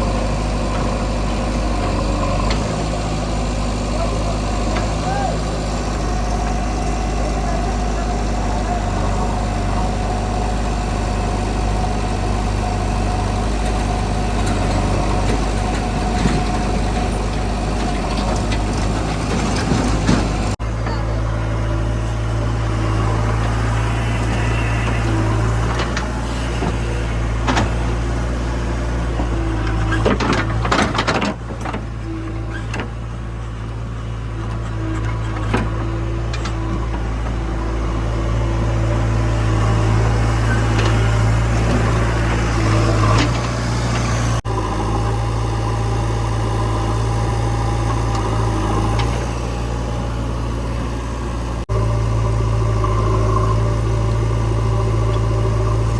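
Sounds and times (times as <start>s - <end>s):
diesel engines running: 0.0s - 55.9s
knocks and clatter: 13.7s - 21.0s, 29.2s - 33.0s.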